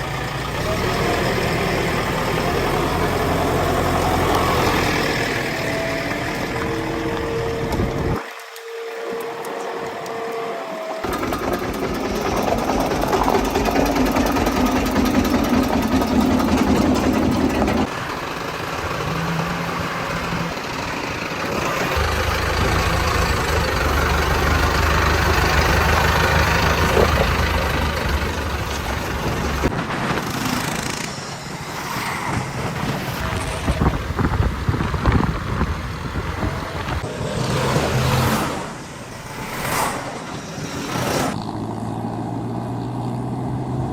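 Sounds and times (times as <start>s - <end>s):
diesel engine working: 0.0s - 8.2s, 10.7s - 43.9s
knocks and clatter: 11.0s - 17.9s.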